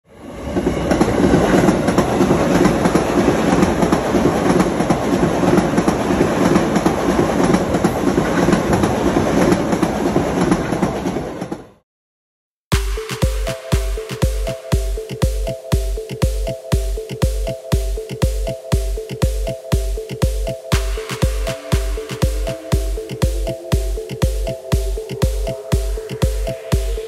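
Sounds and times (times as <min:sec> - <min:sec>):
train wheels on rails: 0:00.2 - 0:11.8
rail joint clicks: 0:00.6 - 0:11.6.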